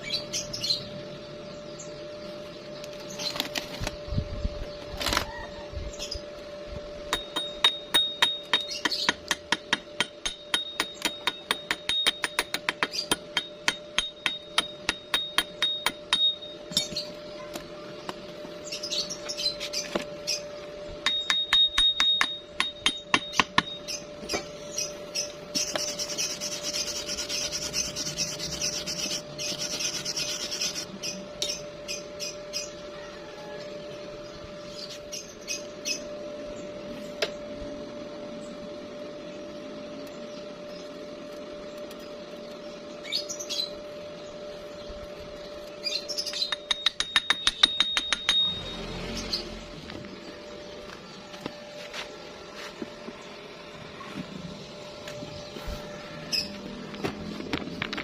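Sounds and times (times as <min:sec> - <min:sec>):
hammer tapping on metal: 0:07.1 - 0:17.0, 0:21.0 - 0:24.0, 0:46.3 - 0:48.7.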